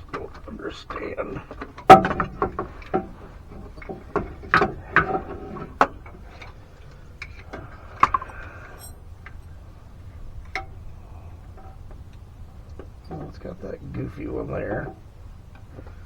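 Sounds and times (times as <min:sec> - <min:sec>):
actuator motor clicks and clunks: 0:00.0 - 0:08.5
short metallic ring: 0:08.2 - 0:09.5.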